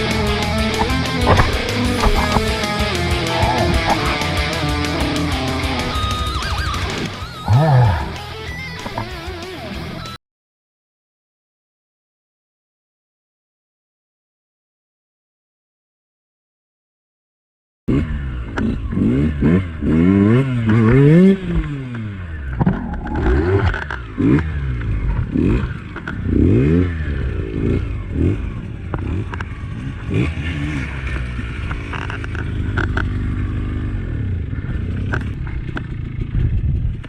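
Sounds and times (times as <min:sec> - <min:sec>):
dirt bike engine revving: 0:00.0 - 0:09.2, 0:17.9 - 0:37.0.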